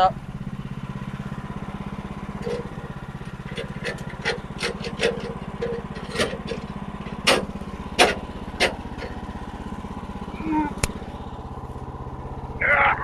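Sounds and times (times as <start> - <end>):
sawmill engine idling: 0.0 - 13.0
sharp knocks and clanks: 2.2 - 9.8.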